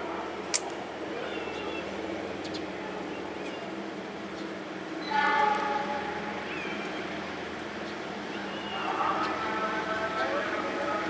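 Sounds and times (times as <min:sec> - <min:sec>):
diesel locomotive rumbling: 0:00.0 - 0:11.0
sharp click: 0:00.5 - 0:00.8.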